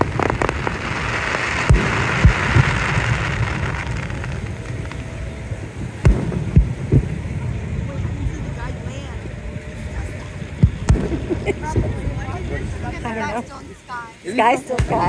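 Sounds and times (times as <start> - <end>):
fireworks bangs and pops: 0.0 - 8.9, 10.6 - 13.1, 14.7 - 15.0
fireworks crackling fizz: 0.0 - 15.0.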